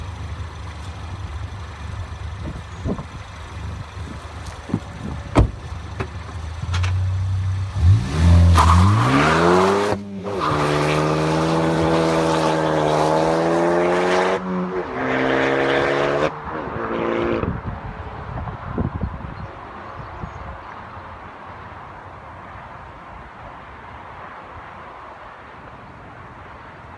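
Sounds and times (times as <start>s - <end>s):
car engine and exhaust revving: 0.0s - 18.8s.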